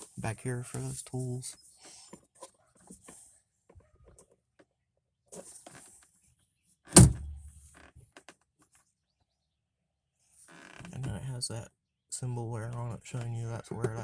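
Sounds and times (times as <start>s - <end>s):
clicks and rustling of handling: 0.0s - 4.7s
loud sharp thud: 7.0s - 7.5s.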